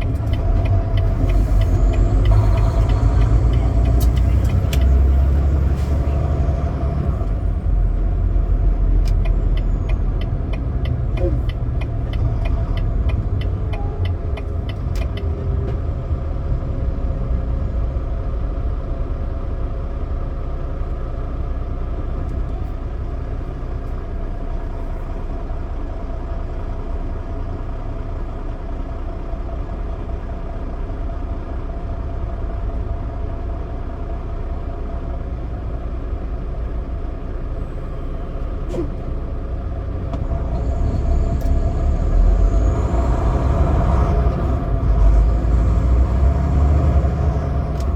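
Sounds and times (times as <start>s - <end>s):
regular ticks: 0.0s - 5.0s, 9.0s - 15.3s
diesel truck engine and road rumble: 0.0s - 47.9s.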